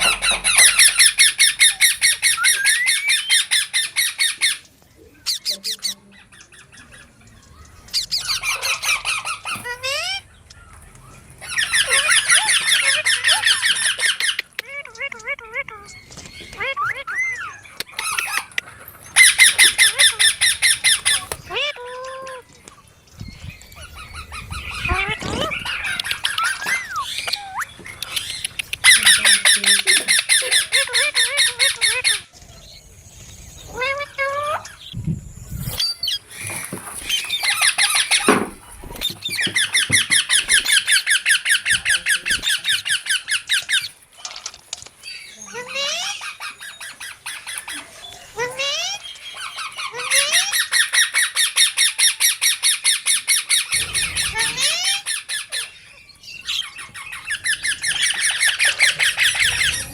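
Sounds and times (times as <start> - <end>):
parrot rising squeaks: 0.0 - 4.6
parrot squawking: 0.0 - 4.7, 7.9 - 10.3, 11.4 - 15.9, 16.5 - 22.5, 23.8 - 32.3, 35.8 - 44.0, 45.2 - 59.9.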